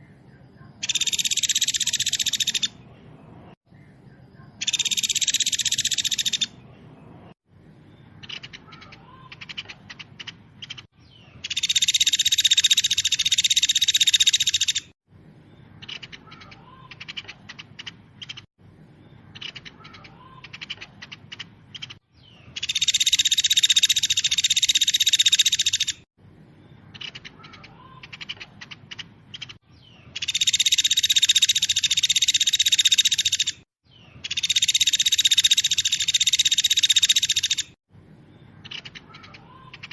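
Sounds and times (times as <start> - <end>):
bird chirps and trills: 0.0 - 39.9
fast high-pitched birdsong: 0.0 - 39.9.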